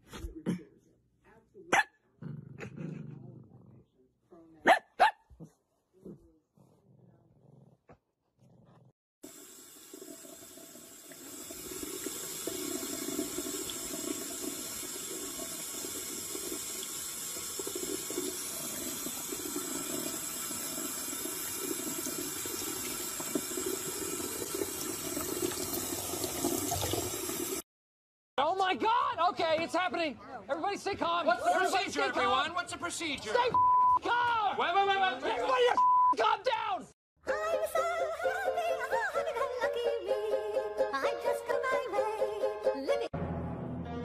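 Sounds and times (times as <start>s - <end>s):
tap water running into sink: 9.2s - 27.6s.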